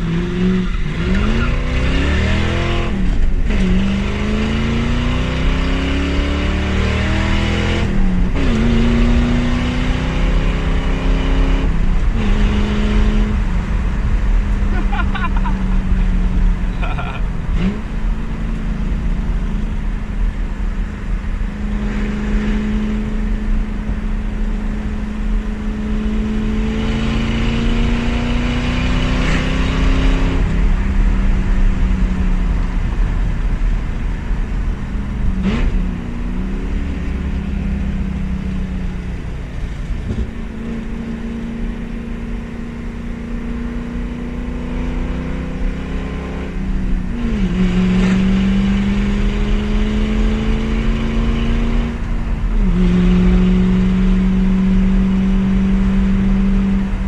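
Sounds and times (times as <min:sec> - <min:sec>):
loud car engine under load: 0:00.0 - 0:57.0.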